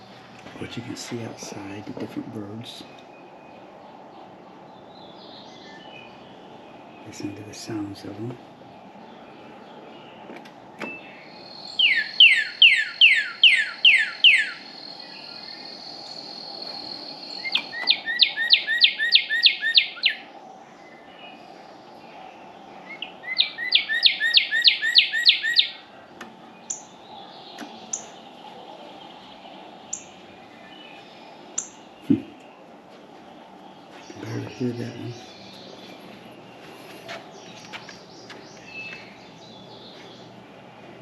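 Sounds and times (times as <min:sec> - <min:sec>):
songbird whistled trills: 0:10.8 - 0:20.2, 0:22.9 - 0:25.8.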